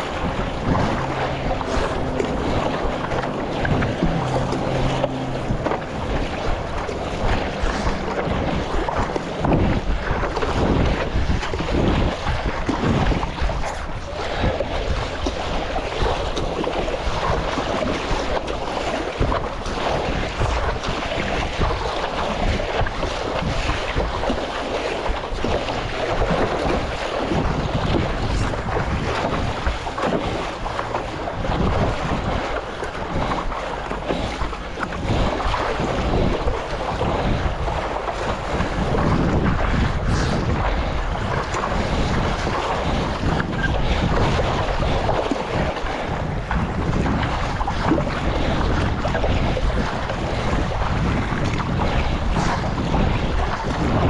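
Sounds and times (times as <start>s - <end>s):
water splashing and sloshing: 0.0s - 54.0s
wind buffeting microphone: 0.0s - 54.0s.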